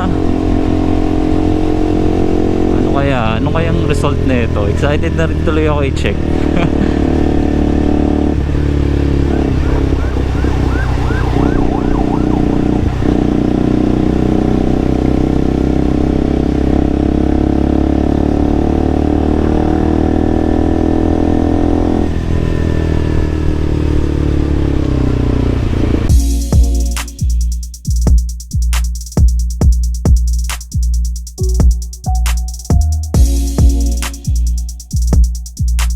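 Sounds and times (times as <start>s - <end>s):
motorcycle engine running: 0.0s - 35.9s
warbling siren: 9.0s - 14.7s.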